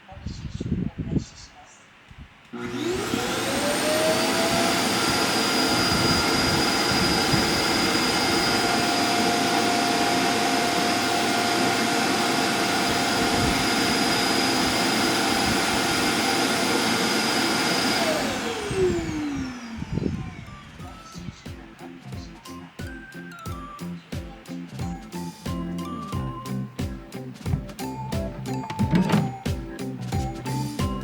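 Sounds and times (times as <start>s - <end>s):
vacuum motor whining: 2.5s - 21.4s, 27.5s - 29.5s.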